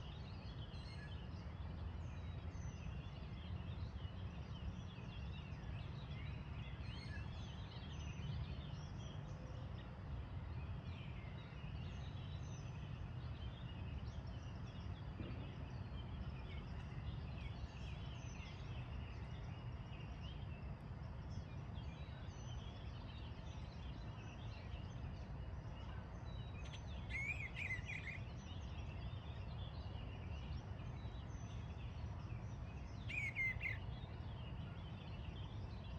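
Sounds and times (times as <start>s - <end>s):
small birds chirping and singing: 0.0s - 35.9s.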